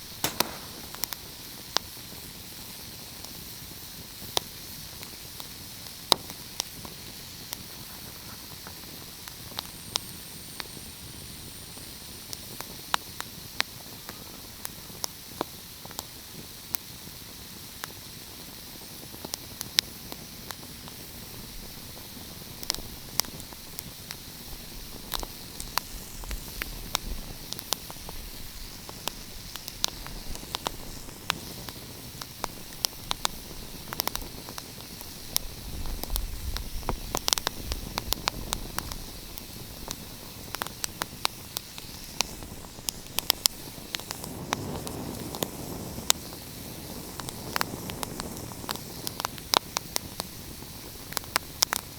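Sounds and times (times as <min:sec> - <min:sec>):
wood fire crackling: 0:00.0 - 0:02.6, 0:19.1 - 0:51.9.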